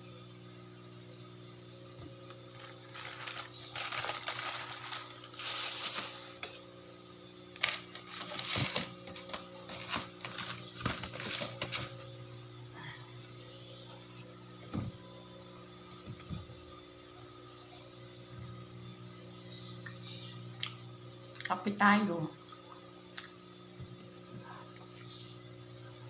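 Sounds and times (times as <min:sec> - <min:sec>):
electrical hum: 0:00.0 - 0:26.0
plastic packaging crinkling: 0:02.4 - 0:06.6, 0:07.6 - 0:12.0.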